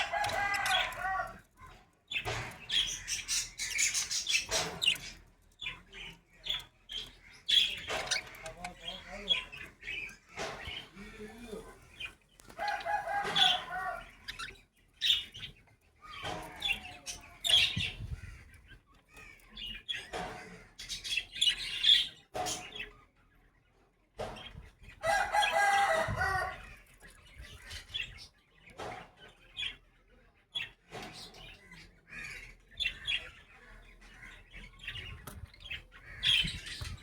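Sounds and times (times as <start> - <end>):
budgerigars chirping: 2.1 - 23.0, 30.6 - 37.0.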